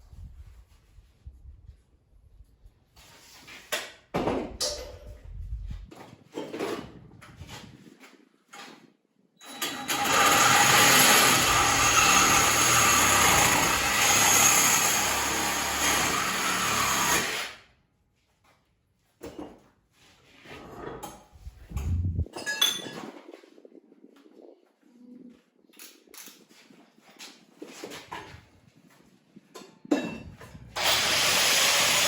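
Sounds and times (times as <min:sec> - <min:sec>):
power tool grinding steel: 0:09.9 - 0:17.4, 0:30.8 - 0:32.0.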